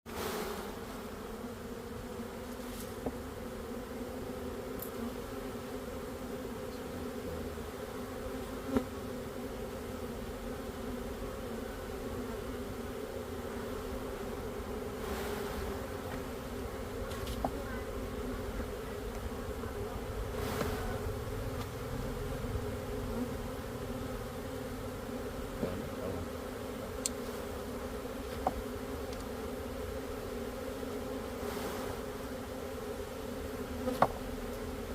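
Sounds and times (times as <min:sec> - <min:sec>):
bees buzzing in a hive: 0:00.1 - 0:34.9
faint ticks: 0:27.0 - 0:27.2.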